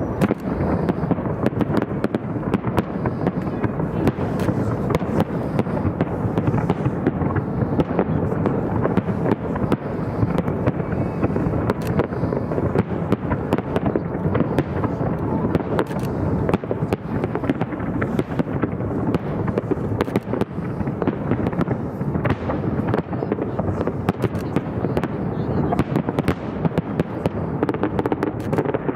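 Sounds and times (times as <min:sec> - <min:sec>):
fireworks crackling and banging: 0:00.0 - 0:28.9.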